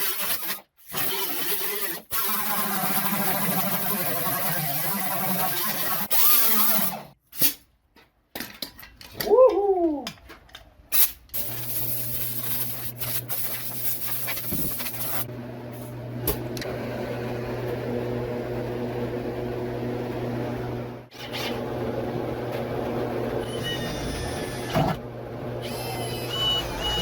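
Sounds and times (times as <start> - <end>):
power tool on sheet metal: 0.0 - 7.2, 11.4 - 16.7, 23.4 - 27.0.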